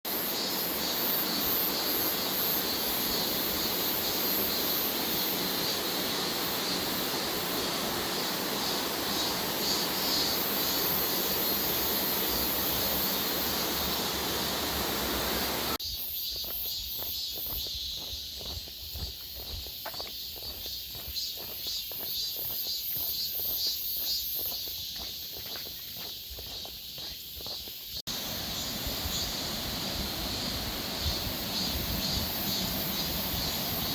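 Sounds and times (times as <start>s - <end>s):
cicada chorus: 0.1s - 33.9s
footsteps on a path: 15.8s - 28.1s.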